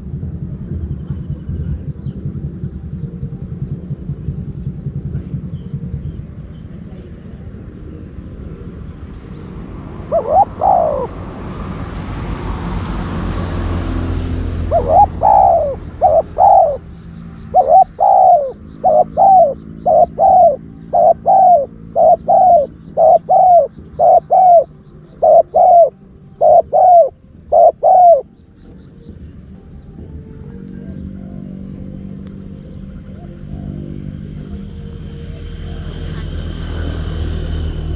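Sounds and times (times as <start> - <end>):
dove cooing: 1.0 - 28.8, 29.9 - 37.8.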